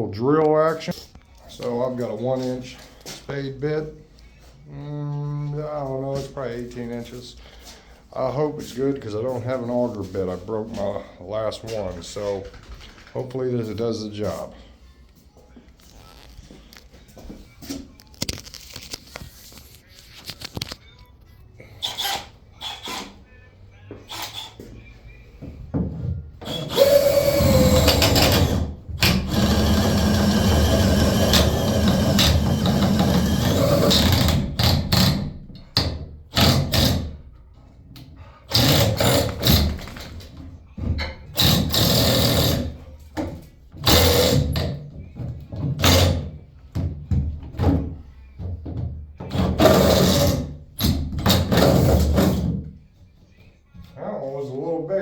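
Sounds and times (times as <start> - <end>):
power drill boring through wood: 21.8 - 23.1, 26.4 - 35.2, 38.5 - 39.7, 41.4 - 42.7, 43.8 - 44.6, 49.3 - 52.4.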